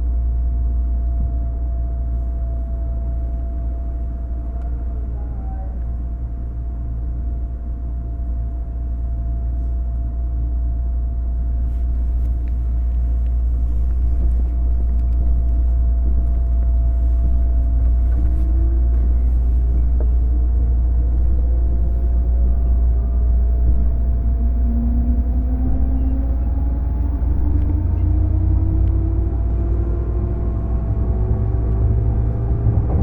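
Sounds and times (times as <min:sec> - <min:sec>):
electric train rumbling: 0:00.0 - 0:33.0
train motor whine rising: 0:14.2 - 0:33.0.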